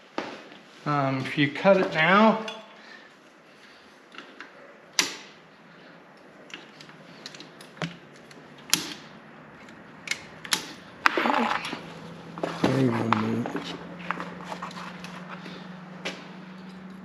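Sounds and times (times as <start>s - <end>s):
creaking squeak: 11.1s - 13.8s.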